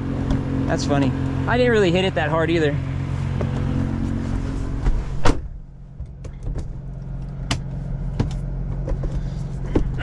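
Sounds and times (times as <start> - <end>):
car engine idling: 0.0 - 10.0
window thump: 4.8 - 5.6.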